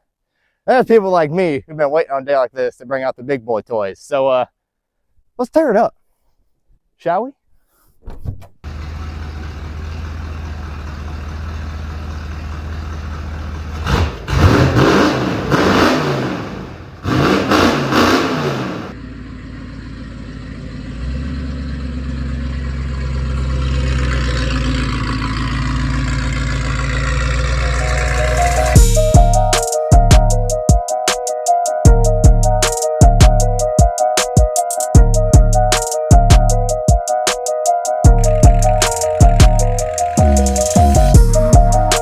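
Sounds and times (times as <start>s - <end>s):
truck engine revving: 8.7s - 30.4s, 38.1s - 42.0s.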